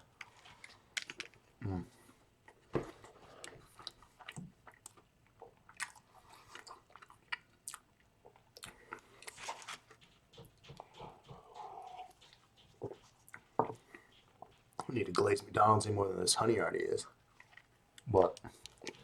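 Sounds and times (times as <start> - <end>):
person chewing crispy food: 0.0 - 14.9, 17.2 - 19.0
mouth clicks and smacks: 3.3 - 15.4.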